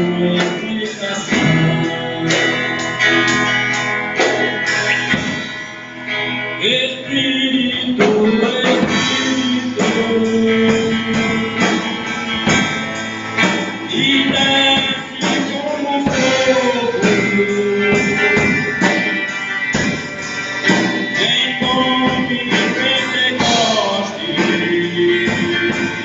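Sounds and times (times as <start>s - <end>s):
person singing long notes: 0.0s - 3.2s, 6.6s - 12.7s, 13.8s - 18.9s
guitar: 0.0s - 26.0s.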